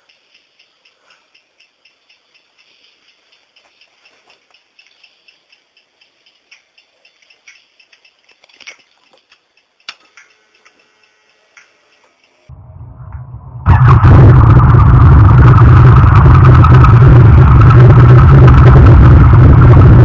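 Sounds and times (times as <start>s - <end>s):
faint regular ticking: 0.0s - 12.5s.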